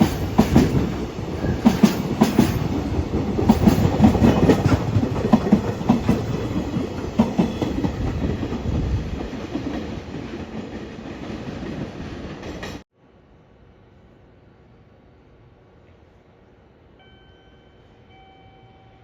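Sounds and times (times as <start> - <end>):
train wheels clicking over rail joints: 0.0 - 12.8.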